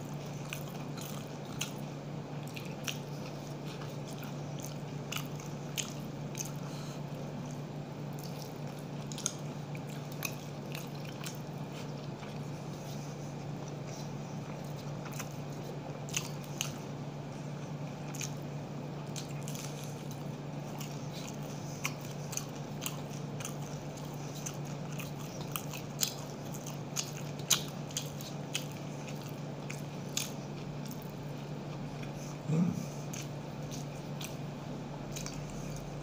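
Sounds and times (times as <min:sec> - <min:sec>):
person chewing food: 0:00.0 - 0:36.0
steady low hum: 0:00.0 - 0:36.0.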